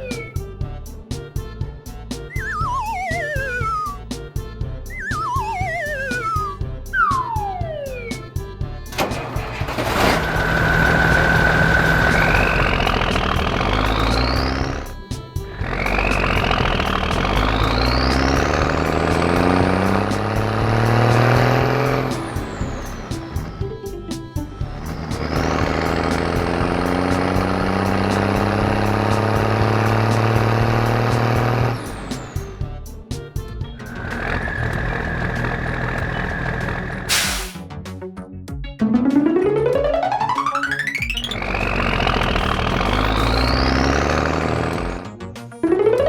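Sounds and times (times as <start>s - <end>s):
cartoon whistle: 0.0s - 0.4s, 2.3s - 4.2s, 4.9s - 8.4s
background music with ticking beat: 0.0s - 46.0s
mechanical engine drone: 8.9s - 32.7s, 33.8s - 37.2s, 40.6s - 45.1s.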